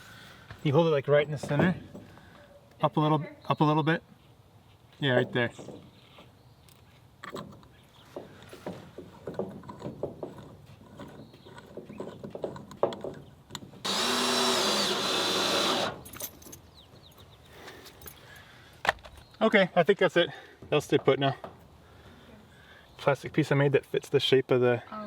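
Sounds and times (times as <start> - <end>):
cordless drill driving screw: 13.8 - 16.2.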